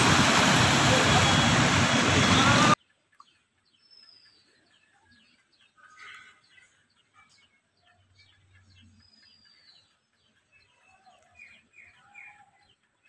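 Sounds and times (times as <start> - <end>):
faint birds chirping: 2.3 - 13.0.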